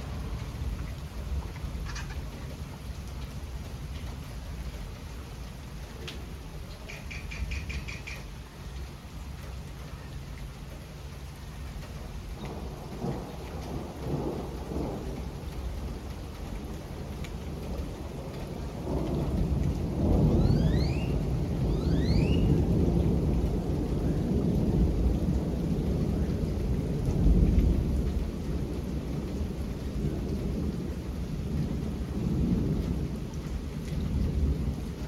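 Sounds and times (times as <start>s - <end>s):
thunder rumbling: 0.0s - 4.0s, 12.0s - 35.0s
steady rain falling: 0.0s - 35.0s.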